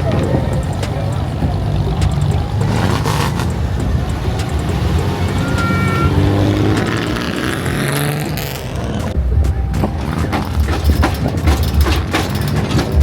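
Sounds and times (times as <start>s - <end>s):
car engine running: 0.0s - 13.0s
brief high tone: 4.3s - 7.0s.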